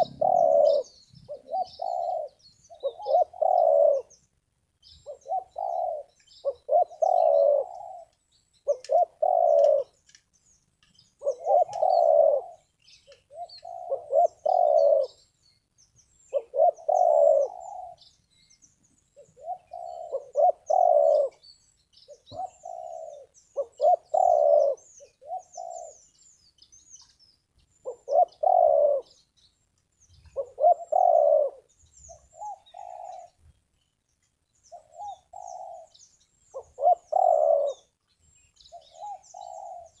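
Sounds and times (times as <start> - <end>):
dove cooing: 0.0 - 4.2, 5.0 - 10.0, 11.2 - 15.2, 16.3 - 18.1, 19.2 - 21.4, 22.1 - 26.1, 27.8 - 29.2, 30.2 - 33.4, 34.7 - 37.9, 38.7 - 40.0
small birds chirping: 0.0 - 40.0.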